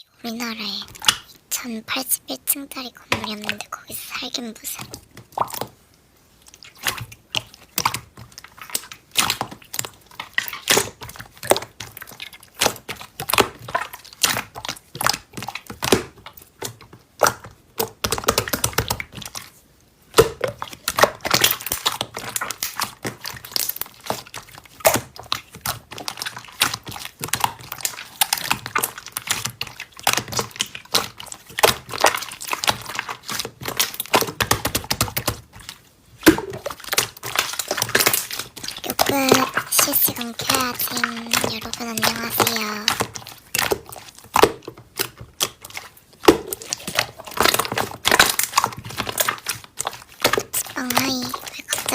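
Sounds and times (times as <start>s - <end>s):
slime squeezed by hand: 20.2s - 51.9s.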